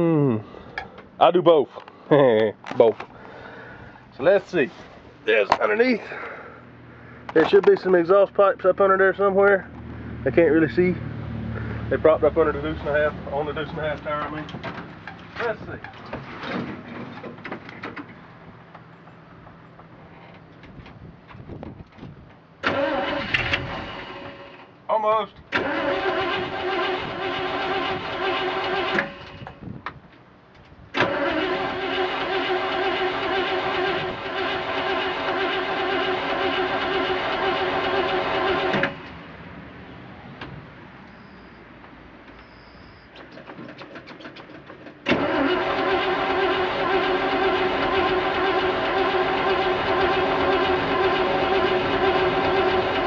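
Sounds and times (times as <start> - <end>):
starter motor cranking engine: 22.6 - 24.6, 25.5 - 29.5, 31.0 - 39.1, 43.2 - 53.0.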